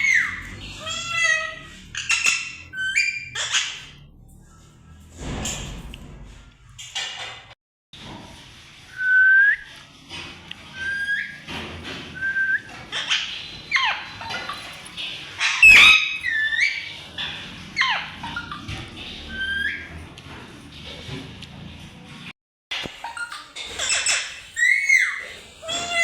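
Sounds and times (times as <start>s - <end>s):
parrot whistling and calling: 0.0s - 3.9s, 10.7s - 11.4s, 12.2s - 14.3s, 15.4s - 16.9s, 23.0s - 26.0s.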